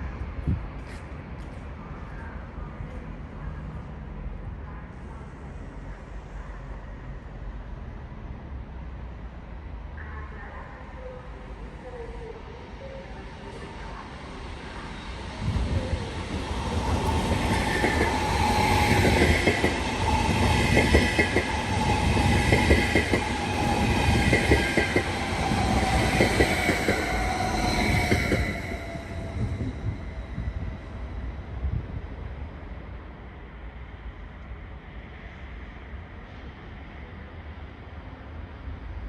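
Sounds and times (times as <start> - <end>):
high ringing tone: 17.0 - 19.5.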